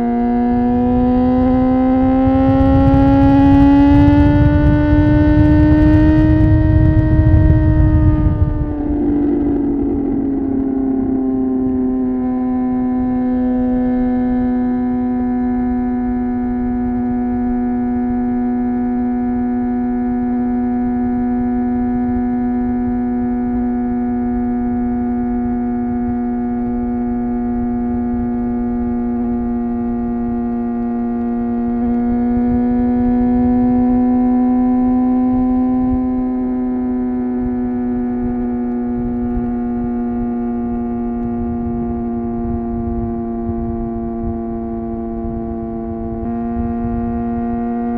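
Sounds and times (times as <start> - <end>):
motorcycle engine cruising drone: 0.0 - 47.9
wind rushing: 2.3 - 12.2.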